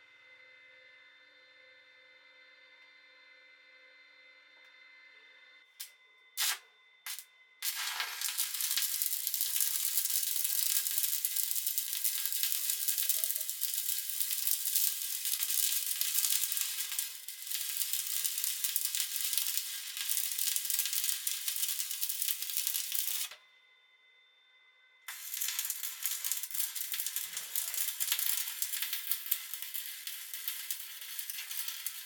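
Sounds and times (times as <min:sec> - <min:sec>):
welding arc crackling: 0:06.4 - 0:23.4, 0:25.1 - 0:32.0.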